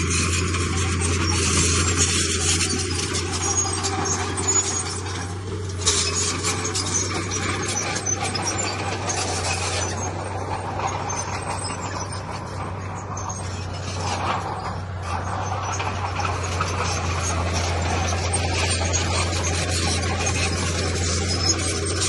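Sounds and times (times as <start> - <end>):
diesel machinery engine drone: 0.0 - 22.0
rough scraping and rattling: 0.0 - 22.0.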